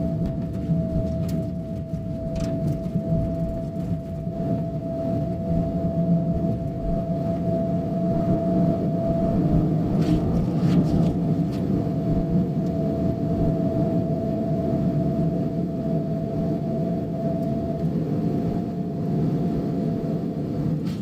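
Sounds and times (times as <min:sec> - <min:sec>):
car engine rumble: 0:00.0 - 0:13.8.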